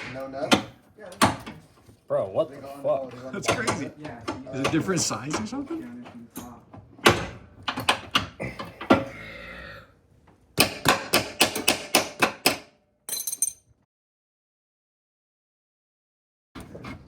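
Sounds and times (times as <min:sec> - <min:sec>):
metallic knocks of hand tools: 0:10.6 - 0:13.6.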